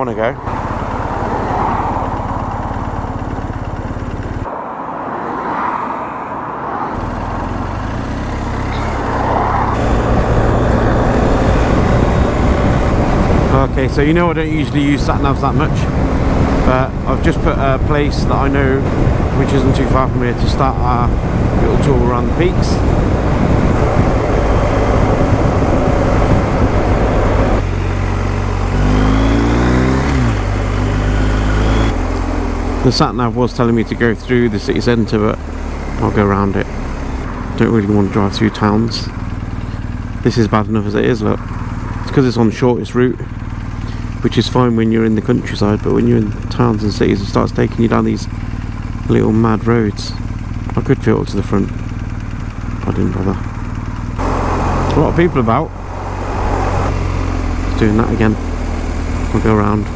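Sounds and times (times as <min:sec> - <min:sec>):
motorcycle engine idling: 0:00.0 - 0:04.5, 0:07.0 - 0:59.9
road traffic: 0:00.0 - 0:59.9
wind rushing over microphone: 0:04.4 - 0:07.4, 0:08.8 - 0:32.1, 0:54.1 - 0:59.9.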